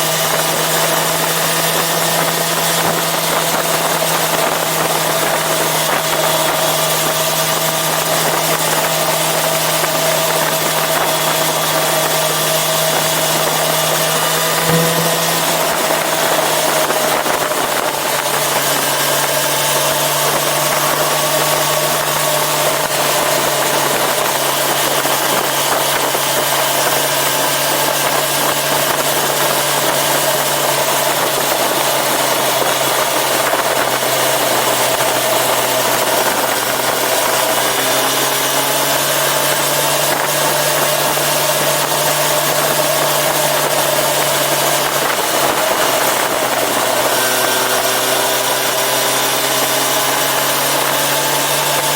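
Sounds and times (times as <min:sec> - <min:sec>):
motorcycle engine running: 0:00.0 - 0:38.3.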